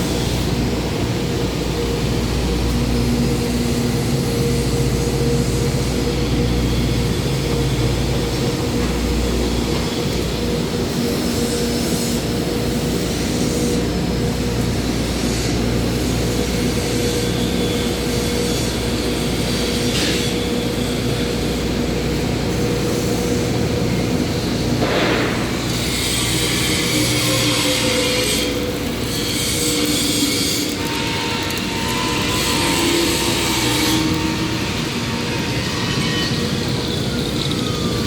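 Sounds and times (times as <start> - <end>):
machinery drone: 15.5 - 38.0.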